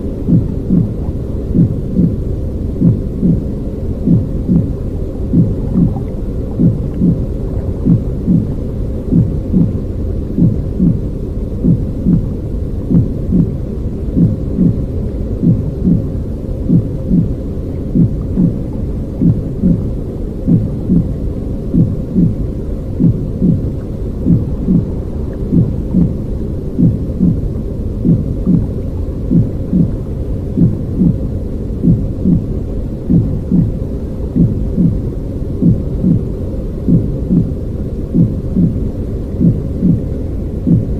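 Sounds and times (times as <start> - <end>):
muffled rumbling heartbeat noise: 0.0 - 40.9.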